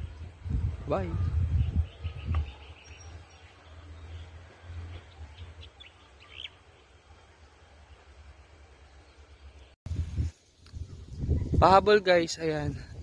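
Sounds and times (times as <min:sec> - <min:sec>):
low rumble on microphone: 0:00.0 - 0:05.7, 0:09.9 - 0:11.6.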